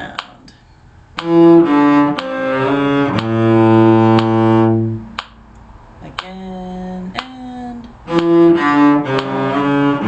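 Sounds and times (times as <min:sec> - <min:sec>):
faint metronome clicks: 0:00.1 - 0:10.0
cello playing: 0:01.1 - 0:05.5, 0:06.5 - 0:10.0.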